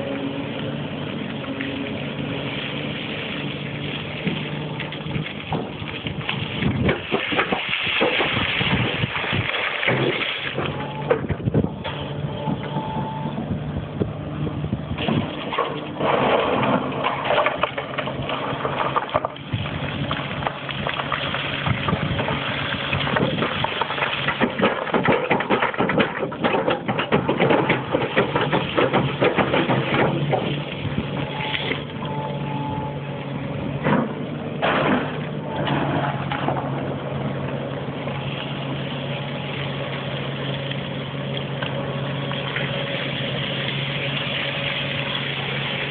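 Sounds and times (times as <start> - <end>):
excavator diesel engine running: 0.0 - 45.9
rock rattling and scraping: 4.0 - 11.7, 15.0 - 31.9.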